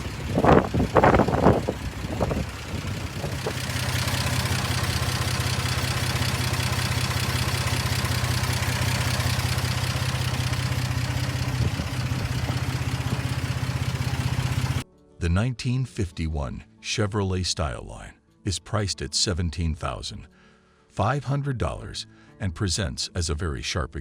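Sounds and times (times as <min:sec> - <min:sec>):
car engine idling: 0:00.0 - 0:14.8
person speaking: 0:15.2 - 0:20.3.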